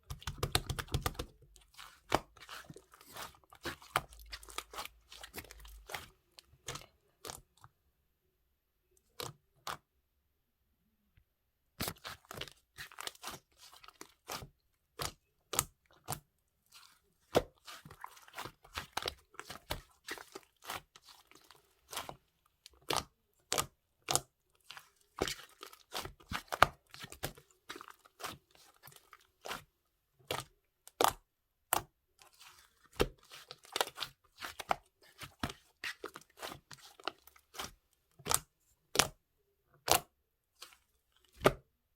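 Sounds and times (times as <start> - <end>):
close-up crunching: 1.4 - 7.4.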